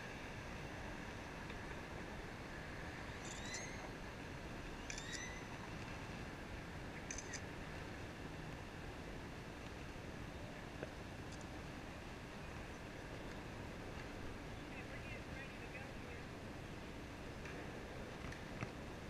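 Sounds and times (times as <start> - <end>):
bird squeaky chirps: 3.2 - 3.8, 4.9 - 5.5.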